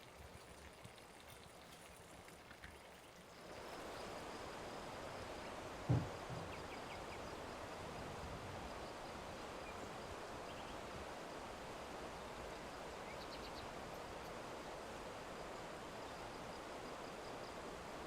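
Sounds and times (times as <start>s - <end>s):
outdoor background noise: 0.0s - 18.0s
low thump: 5.9s - 6.6s.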